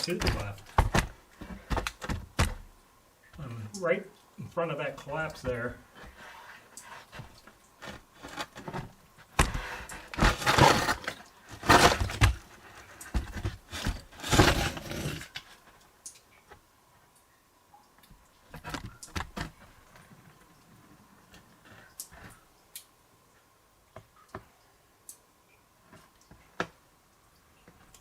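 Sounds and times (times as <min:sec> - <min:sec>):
wood scraping against rock: 0:00.0 - 0:02.6, 0:05.2 - 0:15.8.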